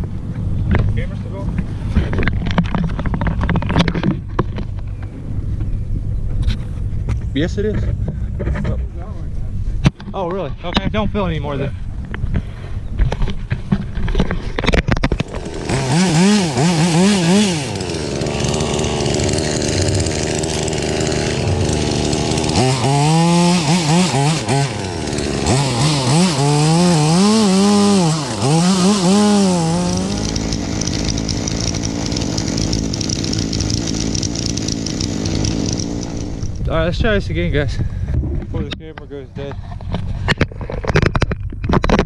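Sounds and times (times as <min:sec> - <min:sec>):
chainsaw cutting wood: 0:14.6 - 0:36.7.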